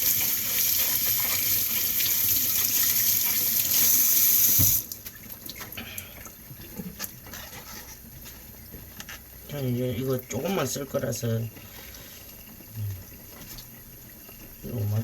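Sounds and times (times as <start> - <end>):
tap water running into sink: 0.0 - 7.1.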